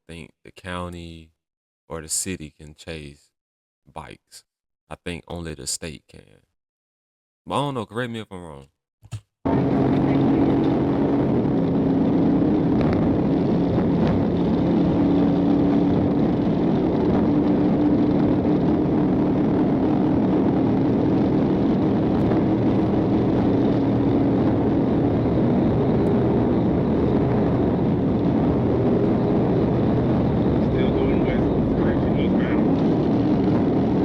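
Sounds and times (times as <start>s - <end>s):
car engine and road noise at speed: 9.5s - 34.0s.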